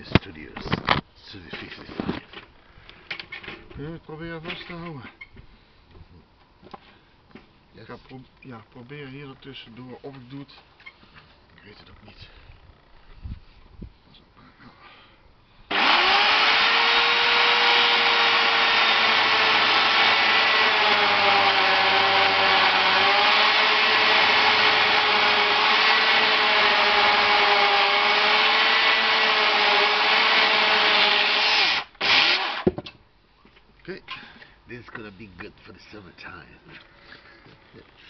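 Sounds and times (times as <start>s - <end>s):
electric saw cutting wood: 15.7s - 32.7s.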